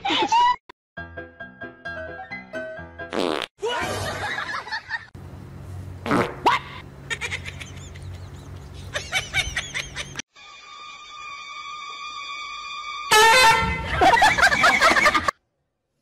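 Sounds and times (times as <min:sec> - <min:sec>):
steady low hum: 0:05.2 - 0:10.2.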